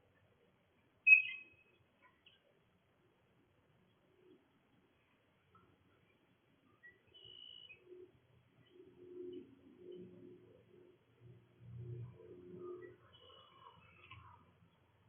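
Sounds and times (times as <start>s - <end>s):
small birds chirping: 1.1s - 2.6s, 3.8s - 10.2s, 12.6s - 14.9s.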